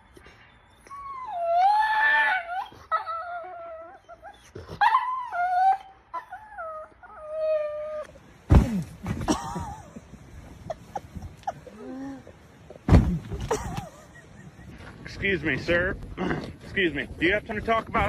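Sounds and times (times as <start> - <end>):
dog howling and whining: 0.7 - 8.2.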